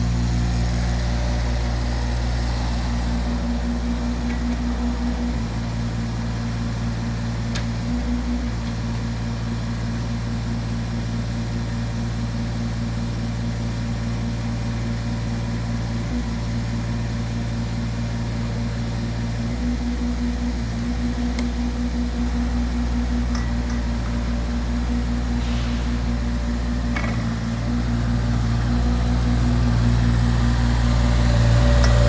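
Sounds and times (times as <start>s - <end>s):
diesel engine droning: 0.0s - 11.6s, 15.0s - 32.0s.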